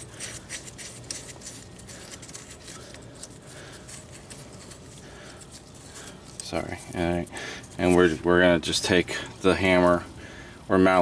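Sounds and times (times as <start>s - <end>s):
metal nut clicking and scraping: 0.0s - 8.1s.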